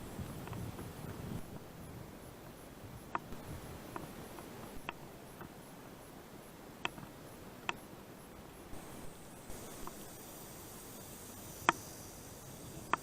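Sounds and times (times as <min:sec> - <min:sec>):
faint high ticking: 0:00.0 - 0:13.0.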